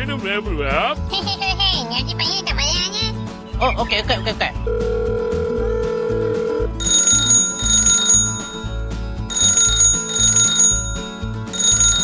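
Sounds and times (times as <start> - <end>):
telephone ringing: 4.7 - 12.0.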